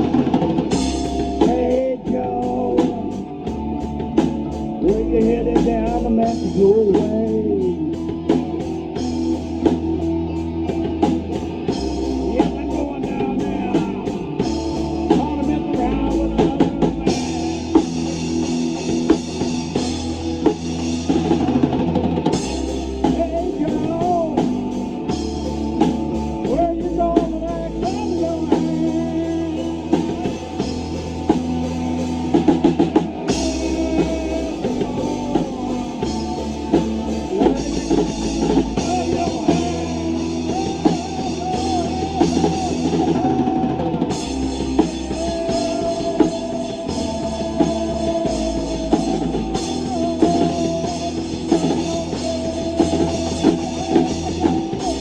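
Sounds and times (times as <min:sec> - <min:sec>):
bass guitar: 0:00.0 - 0:55.0
drum kit: 0:00.0 - 0:55.0
electric guitar lead line: 0:00.0 - 0:55.0.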